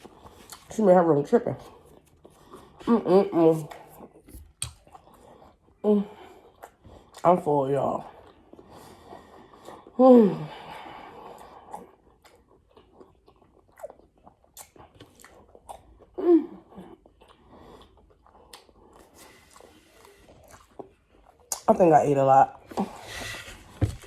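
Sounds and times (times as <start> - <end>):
close chewing and mouth sounds: 0.0 - 24.0.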